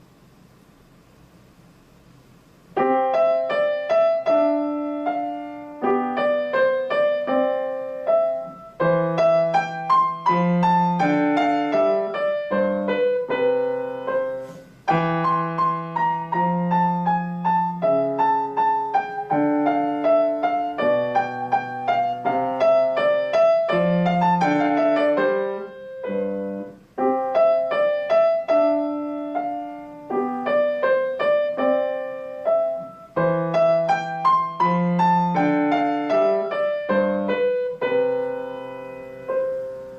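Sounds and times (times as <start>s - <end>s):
solo piano piece: 0.0s - 39.9s.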